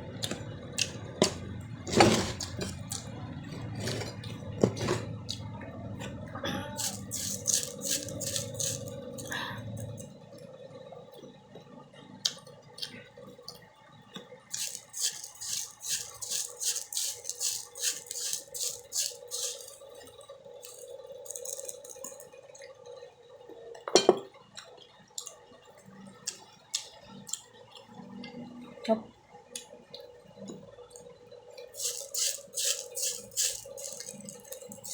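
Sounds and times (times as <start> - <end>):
crunching and chewing fruit: 0.0 - 5.5, 6.7 - 10.4, 12.0 - 22.8, 29.5 - 34.9
steady hum: 0.0 - 12.1.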